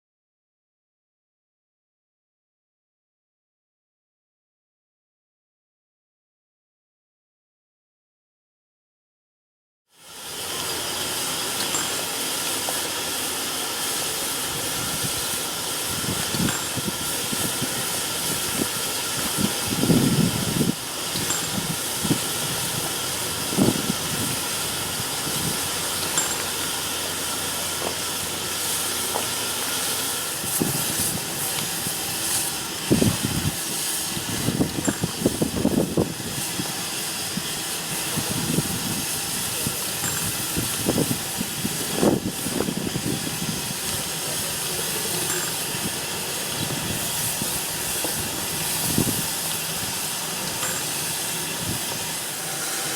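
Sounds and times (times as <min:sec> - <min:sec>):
steam locomotive hissing: 0:10.0 - 0:52.9.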